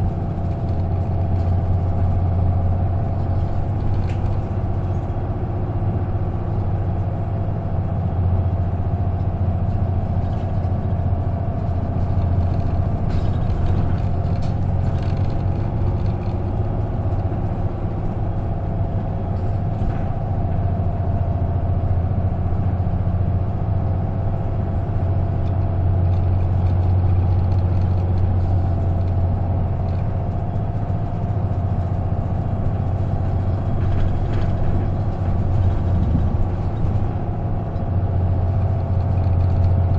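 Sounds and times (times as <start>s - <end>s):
bus diesel engine droning: 0.0s - 39.9s
faint clicks and rattles: 25.4s - 39.9s.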